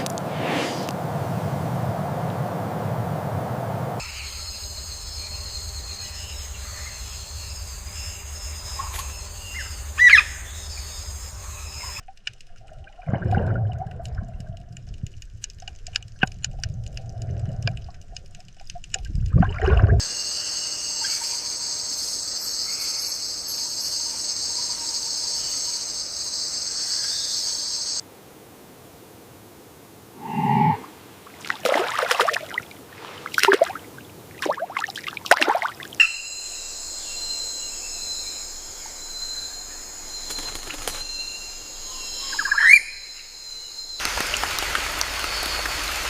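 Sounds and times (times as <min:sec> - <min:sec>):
high buzzing drone: 0:04.0 - 0:12.0
short rising chirp: 0:30.2 - 0:30.9.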